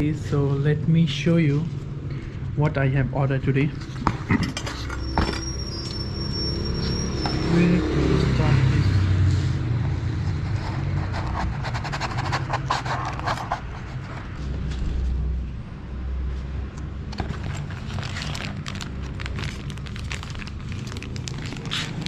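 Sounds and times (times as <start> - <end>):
cardboard scraping and tearing: 10.4 - 14.4, 17.1 - 22.0.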